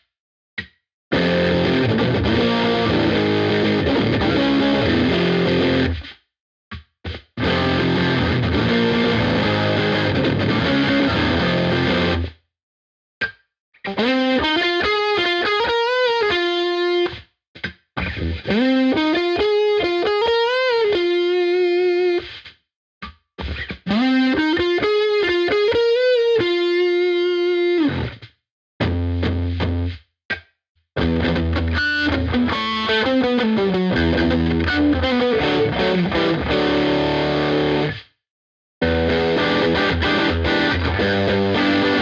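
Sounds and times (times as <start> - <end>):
distorted electric guitar: 1.1 - 6.1, 7.1 - 12.4, 13.9 - 22.5, 23.4 - 30.0, 31.0 - 38.1, 38.8 - 42.0.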